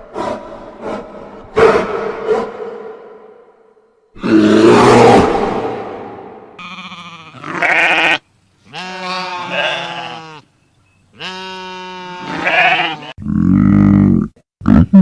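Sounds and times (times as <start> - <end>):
loud low animal sound: 4.2 - 8.2
goat or sheep bleating: 6.6 - 10.4, 11.2 - 13.2.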